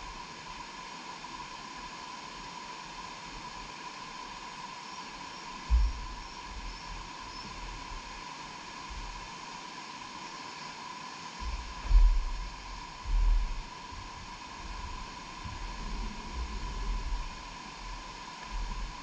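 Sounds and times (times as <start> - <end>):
steady outdoor hiss: 0.0 - 19.0
wind buffeting microphone: 11.4 - 17.4.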